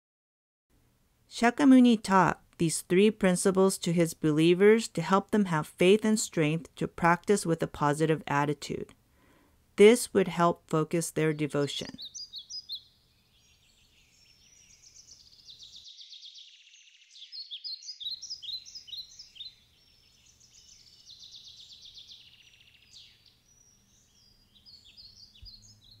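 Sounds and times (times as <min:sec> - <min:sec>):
songbirds chirping and trilling: 0:10.1 - 0:26.0.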